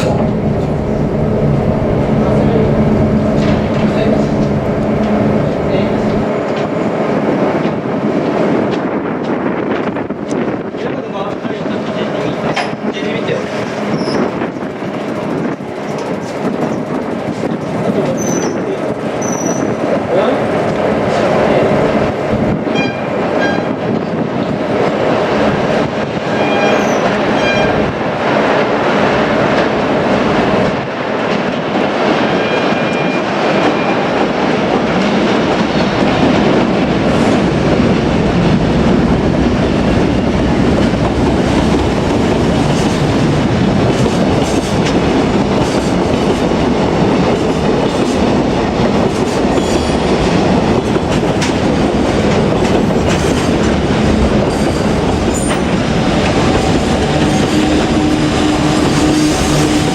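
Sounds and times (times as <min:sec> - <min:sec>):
train rumbling past: 0:00.0 - 0:59.9
wheels clicking over rail joints: 0:12.1 - 0:21.2.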